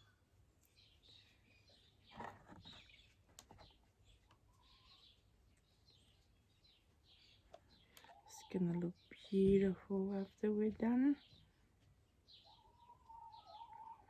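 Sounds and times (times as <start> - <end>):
soft rustle: 0.0 - 10.0
faint birds chirping: 0.0 - 14.0.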